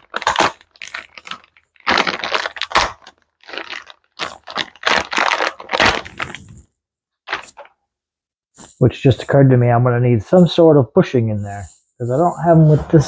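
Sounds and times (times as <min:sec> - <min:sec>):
packaging rustling: 0:00.0 - 0:06.7, 0:07.3 - 0:07.7.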